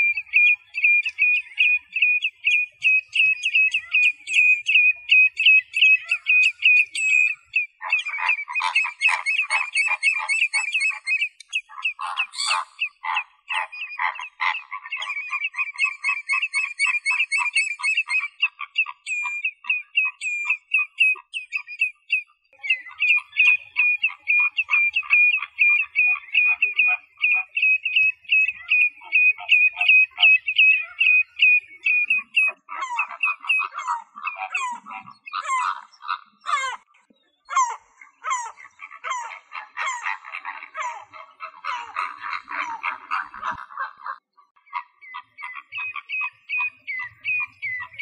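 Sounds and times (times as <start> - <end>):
fast repeated animal calls: 22.6 - 36.9, 37.5 - 48.0.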